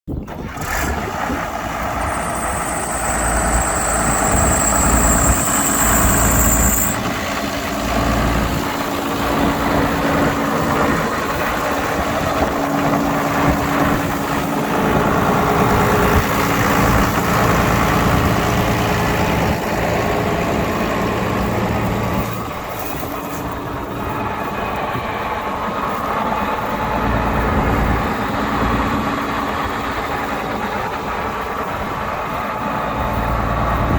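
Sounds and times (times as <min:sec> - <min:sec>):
tractor diesel engine running: 0:00.1 - 0:33.9
thin high-pitched whine: 0:01.8 - 0:07.4.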